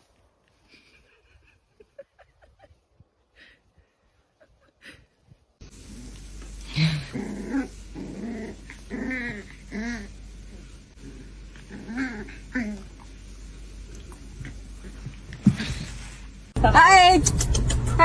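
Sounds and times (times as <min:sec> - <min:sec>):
dog growling and whining: 0:05.9 - 0:13.1.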